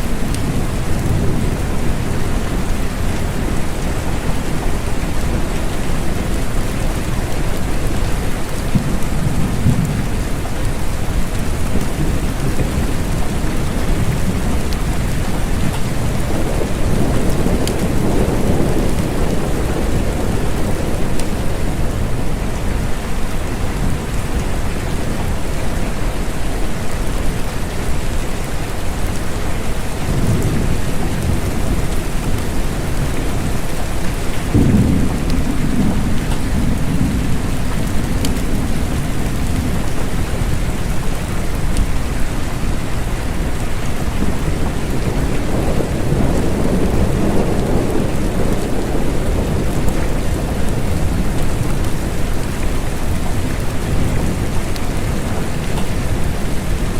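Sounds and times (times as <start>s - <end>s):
steady rain: 0.0s - 56.9s
thunder rolling: 11.5s - 22.6s, 30.1s - 40.2s, 44.2s - 56.8s.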